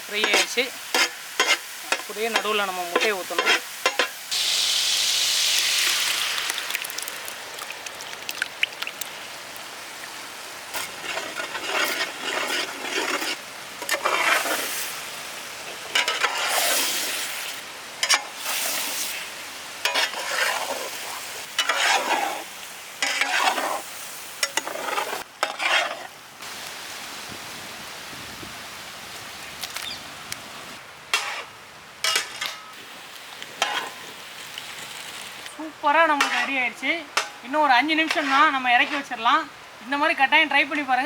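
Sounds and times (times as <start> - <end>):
food sizzling in a pan: 0.0 - 26.7, 31.1 - 40.3
spatula scraping pan: 0.2 - 4.1, 10.8 - 14.8, 15.9 - 17.0, 19.8 - 26.1, 31.2 - 31.5, 36.2 - 39.3.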